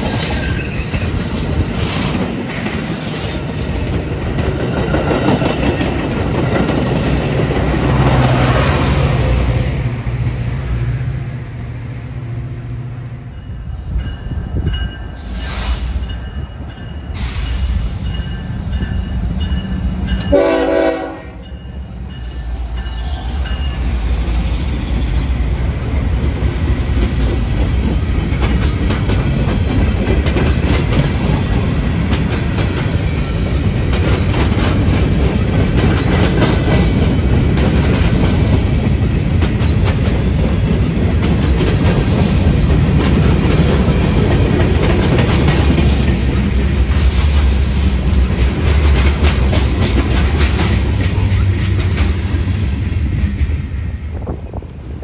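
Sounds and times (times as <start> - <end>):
train passing with clickety-clack: 0.0 - 55.0
train horn blast: 20.2 - 21.5.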